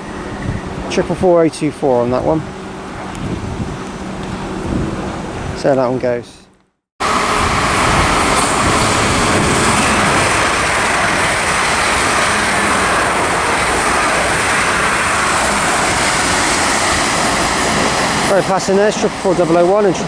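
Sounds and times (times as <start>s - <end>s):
train passing at speed: 0.0s - 5.5s, 7.0s - 20.0s.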